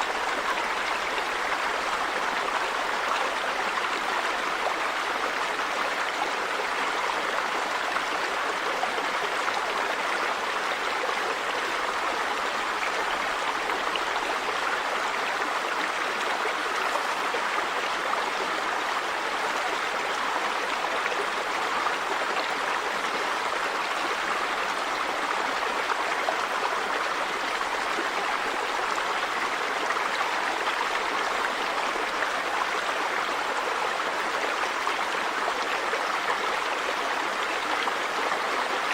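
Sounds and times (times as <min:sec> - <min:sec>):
river water running over rocks: 0:00.0 - 0:38.9.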